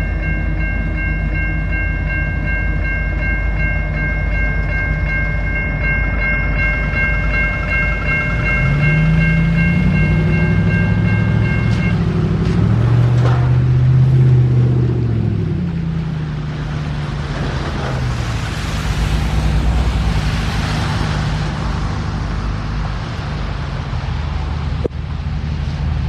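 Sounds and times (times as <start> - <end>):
high-pitched tones: 0.0 - 12.3
train diesel engine rumbling: 0.0 - 26.0.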